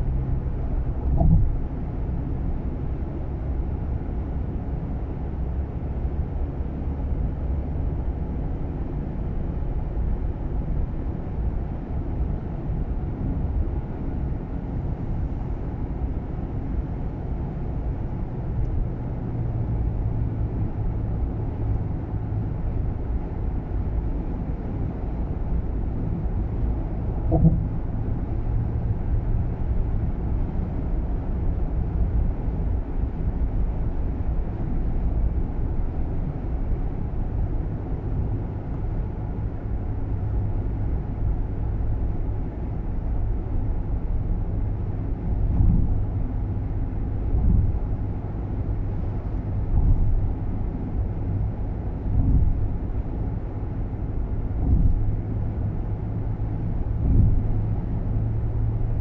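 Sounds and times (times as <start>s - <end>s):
road and engine rumble in car: 0.0s - 59.0s
soft thumps: 1.1s - 1.6s, 27.3s - 27.8s, 49.6s - 50.2s, 52.1s - 52.7s, 54.6s - 55.1s.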